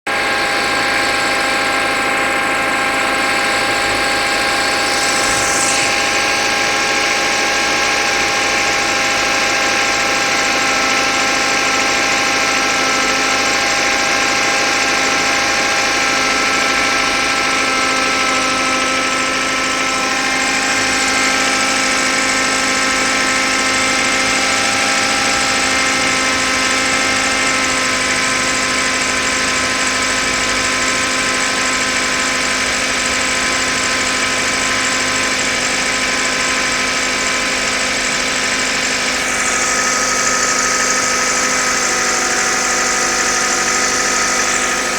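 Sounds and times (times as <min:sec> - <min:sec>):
car engine idling: 0:00.1 - 0:44.9
steady whistle: 0:00.4 - 0:29.6.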